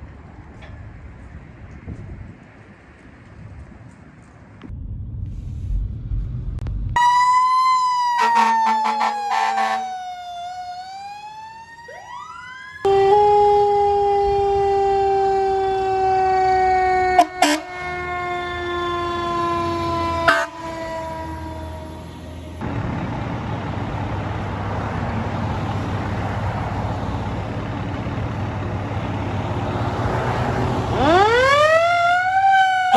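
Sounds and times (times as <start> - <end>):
fire truck siren wailing: 7.0 - 32.9
sharp horn blasts: 8.2 - 9.8, 17.1 - 18.0, 19.7 - 22.0
rapid air horn pulsing: 8.2 - 9.9, 16.8 - 22.1.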